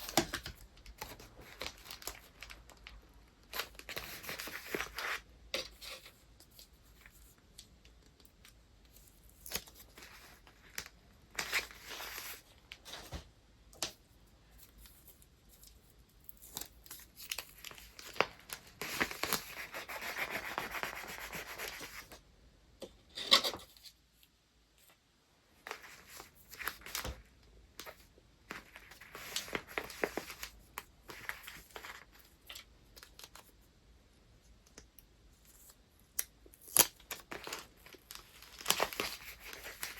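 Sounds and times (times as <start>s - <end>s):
paper rustling and crinkling: 0.0s - 7.6s, 8.9s - 13.3s, 14.5s - 22.2s, 25.6s - 33.5s, 36.7s - 39.9s.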